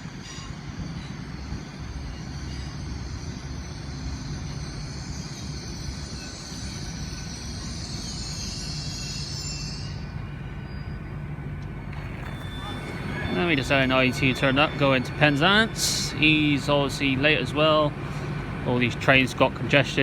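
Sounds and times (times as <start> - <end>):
high metallic squeal: 0.0 - 18.5
train rumbling: 0.0 - 20.0.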